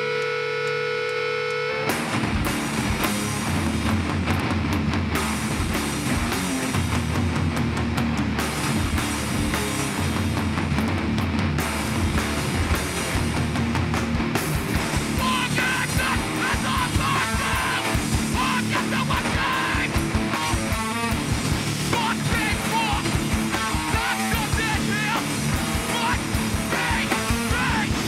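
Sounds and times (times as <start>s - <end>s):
distorted electric guitars: 0.0s - 28.0s
fast drums: 1.9s - 28.0s
shouted vocals: 15.2s - 20.9s, 21.9s - 28.0s.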